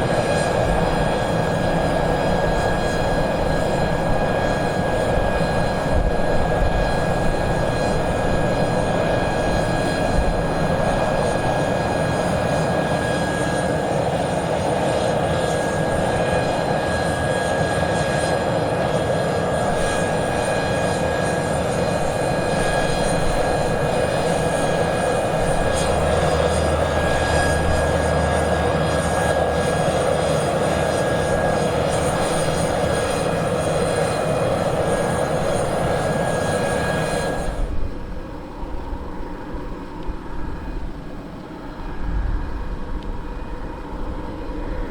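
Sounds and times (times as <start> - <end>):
turboprop engines high whine: 0.0 - 44.9
deeper hum: 23.2 - 32.8.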